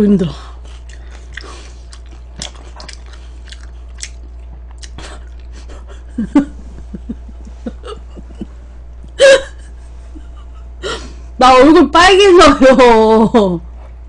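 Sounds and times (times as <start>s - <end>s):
low steady hum: 0.0s - 14.0s
chewing and crunching food: 0.4s - 6.0s
mouth clicks and smacks: 0.7s - 5.6s.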